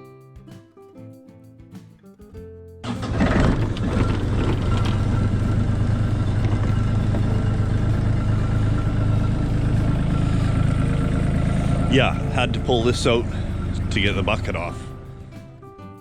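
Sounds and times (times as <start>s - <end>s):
diesel engine idling: 2.8s - 15.7s.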